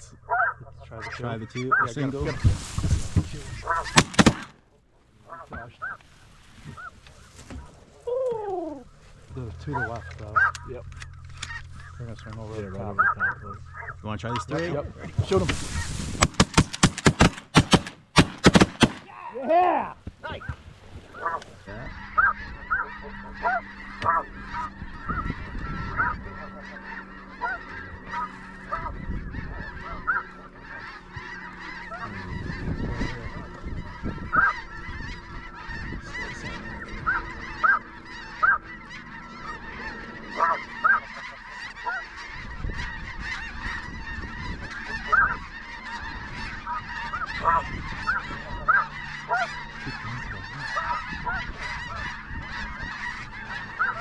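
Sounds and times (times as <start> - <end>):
chorus of birds: 0.0 - 54.0
geese honking: 0.0 - 54.0.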